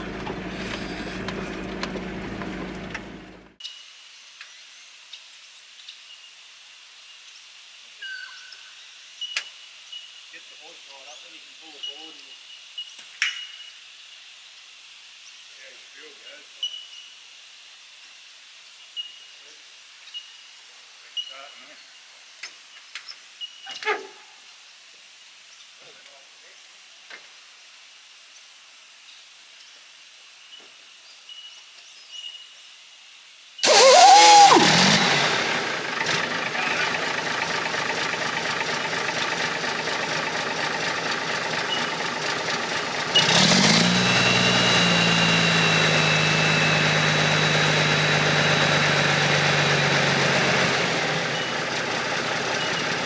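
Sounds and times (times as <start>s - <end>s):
diesel engine cranking and idling: 0.0s - 3.6s, 33.6s - 53.0s.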